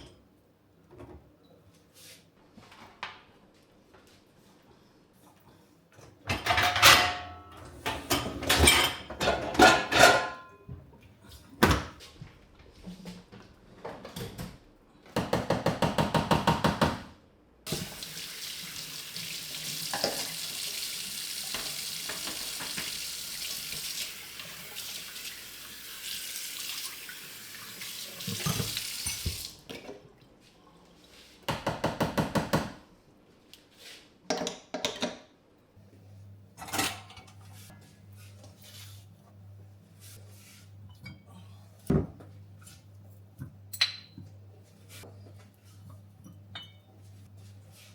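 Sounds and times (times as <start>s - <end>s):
dishes clattering: 6.3s - 10.7s, 19.9s - 20.4s, 36.6s - 37.4s, 46.2s - 46.9s
tap running into sink: 17.7s - 18.3s, 28.2s - 29.5s.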